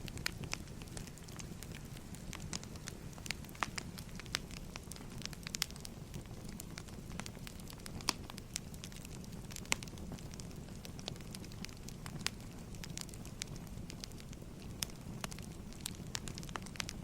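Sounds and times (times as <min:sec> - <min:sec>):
fire low rumble: 0:00.0 - 0:17.0
firewood crackling and popping: 0:00.0 - 0:17.0.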